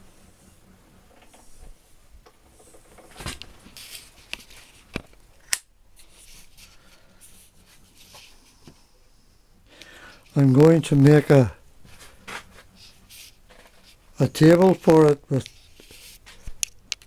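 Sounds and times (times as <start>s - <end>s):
rustling: 1.1s - 5.2s, 15.4s - 16.6s.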